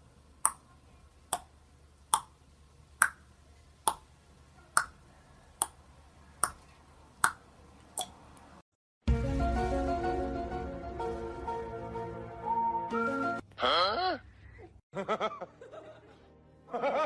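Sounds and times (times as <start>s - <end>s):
loud music: 9.1s - 13.2s.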